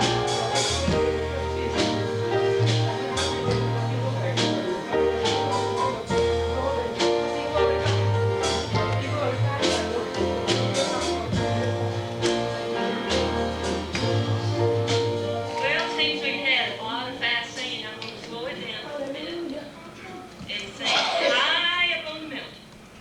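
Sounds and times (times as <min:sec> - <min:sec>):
bass notes: 0:00.0 - 0:15.8
guitar: 0:00.0 - 0:21.6.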